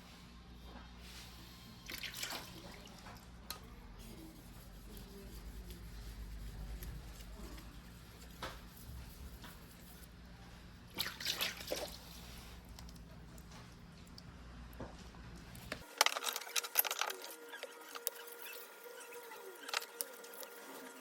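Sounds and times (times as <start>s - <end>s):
low steady hum: 0.0s - 20.9s
water dripping and splashing: 1.9s - 3.2s, 10.9s - 14.3s.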